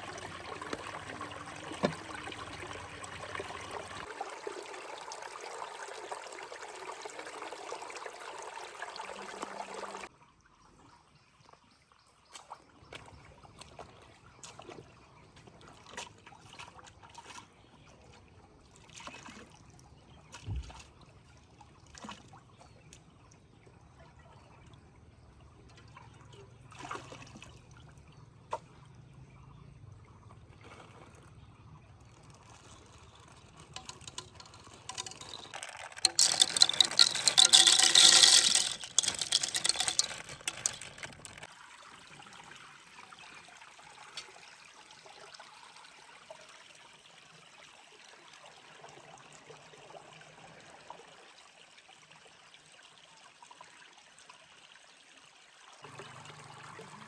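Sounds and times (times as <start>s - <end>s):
liquid pouring into vessel: 0.0s - 7.0s, 32.2s - 41.5s.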